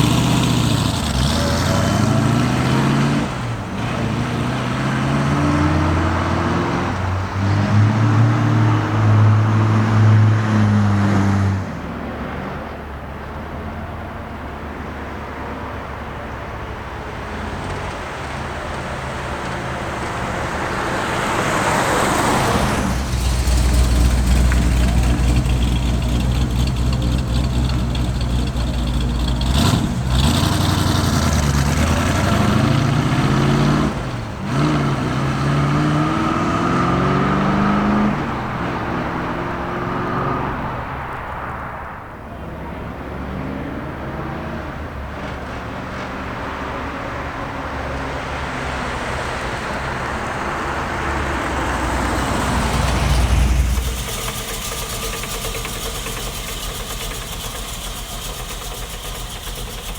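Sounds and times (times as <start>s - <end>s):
car engine revving through gears: 0.0s - 11.6s, 18.7s - 41.0s, 43.1s - 59.9s.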